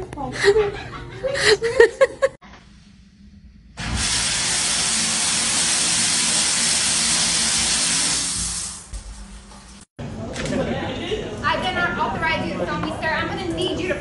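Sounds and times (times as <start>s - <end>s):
loud steady hissing: 3.8s - 8.9s.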